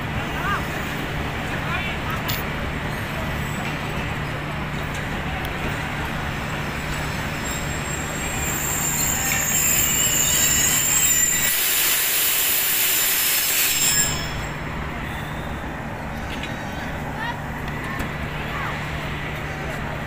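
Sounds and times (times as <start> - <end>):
train wheels rumbling: 0.0 - 20.0
high-pitched metallic squeal: 7.0 - 15.6.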